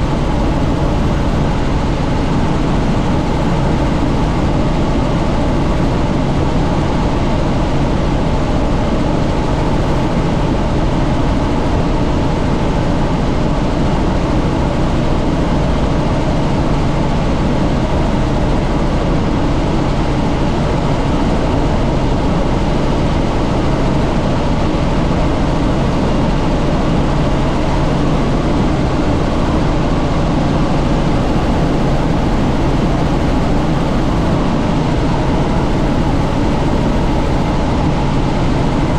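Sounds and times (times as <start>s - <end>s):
rushing air: 0.0s - 6.0s, 30.7s - 38.5s
helicopter engine and rotor drone: 0.0s - 38.9s.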